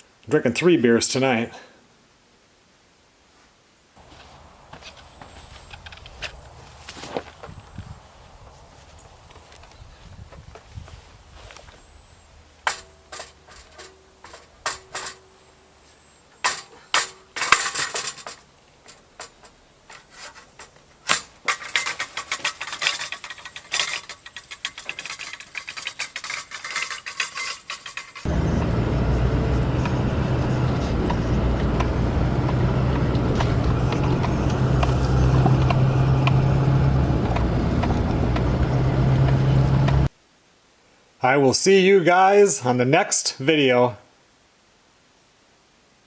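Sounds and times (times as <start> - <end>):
vehicle engine starting and running: 28.3 - 40.1.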